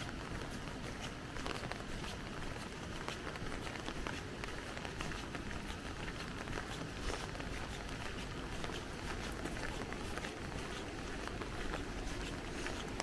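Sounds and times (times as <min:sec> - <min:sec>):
raindrops tapping on umbrella: 0:00.0 - 0:13.0.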